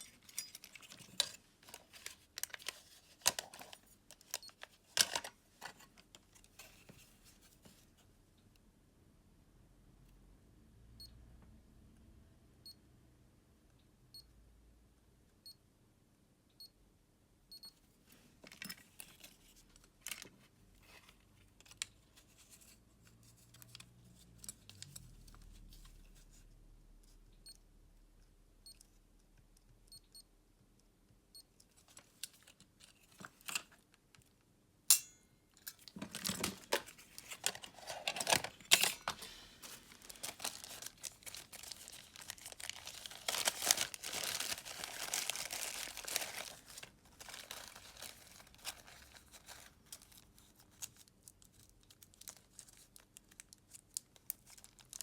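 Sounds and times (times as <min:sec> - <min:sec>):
crackling and rustling: 0:35.7 - 0:55.0.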